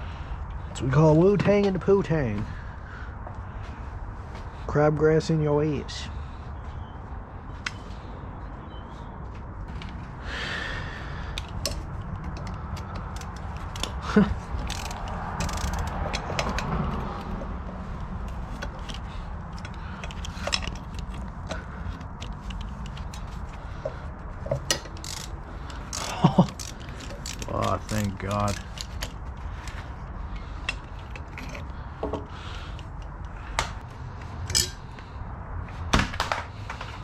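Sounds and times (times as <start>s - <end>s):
metal tool clicks and knocks: 34.4s - 35.0s.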